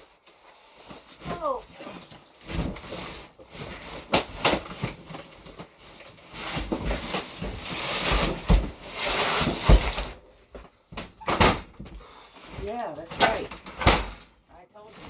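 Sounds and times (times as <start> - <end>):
rustling: 0.0 - 15.0.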